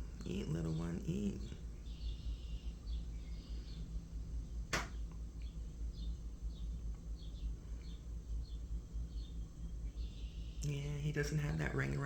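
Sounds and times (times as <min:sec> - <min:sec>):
faint bird chirps: 0:01.0 - 0:11.2
sharp click: 0:04.7 - 0:05.0.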